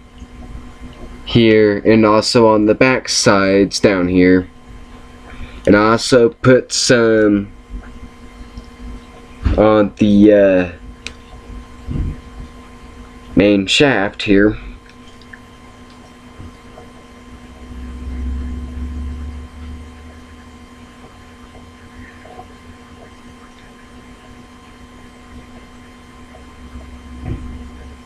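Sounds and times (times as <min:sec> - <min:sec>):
electrical hum: 0:00.0 - 0:28.0
low rumble: 0:17.1 - 0:20.9.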